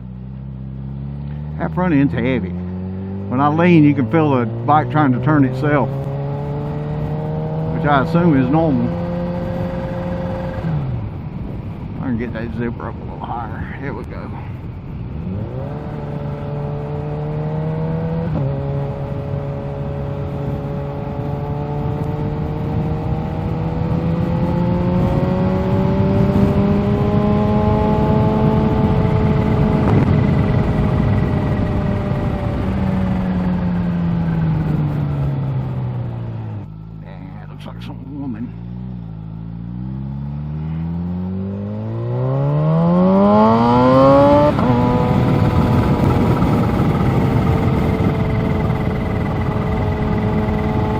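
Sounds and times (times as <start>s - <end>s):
motorcycle engine accelerating: 0.0s - 50.9s
wind rushing: 19.1s - 36.6s, 41.2s - 50.9s.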